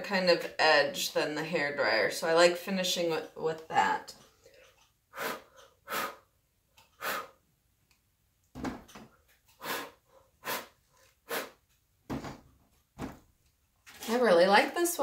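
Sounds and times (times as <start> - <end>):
person blowing short puffs: 5.1 - 7.4, 9.5 - 11.6.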